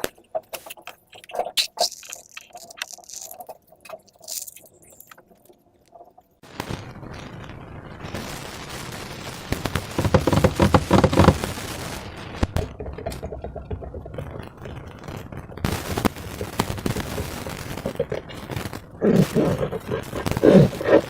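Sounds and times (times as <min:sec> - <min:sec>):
slime squelching and popping: 0:00.0 - 0:06.2.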